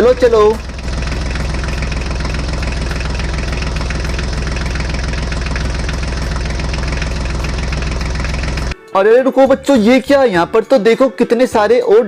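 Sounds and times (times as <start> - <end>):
tractor engine chugging: 0.0 - 8.8.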